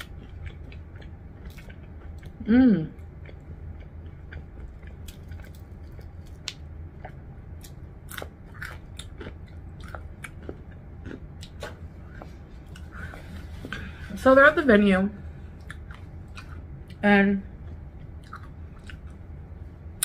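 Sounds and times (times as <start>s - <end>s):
chewing and biting: 0.0s - 2.4s, 3.0s - 13.3s, 15.6s - 17.0s, 17.6s - 19.3s.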